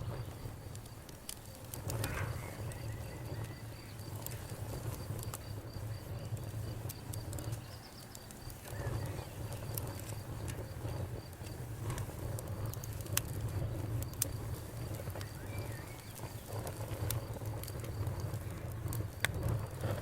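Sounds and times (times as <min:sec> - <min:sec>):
campfire crackling and popping: 0:00.0 - 0:20.0
low rumble of flames: 0:00.0 - 0:20.0.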